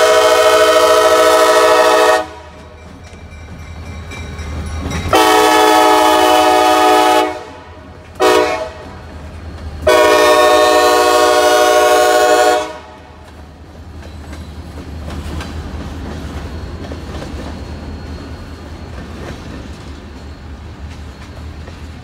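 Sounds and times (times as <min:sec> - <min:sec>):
locomotive air horn blast: 0:00.0 - 0:02.6, 0:05.1 - 0:08.9, 0:09.8 - 0:13.1
wheels clattering over rail joints: 0:13.2 - 0:22.0.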